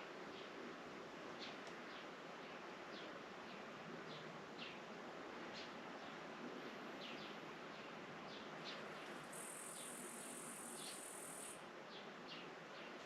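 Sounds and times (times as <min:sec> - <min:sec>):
insect high buzz: 0:09.2 - 0:11.6.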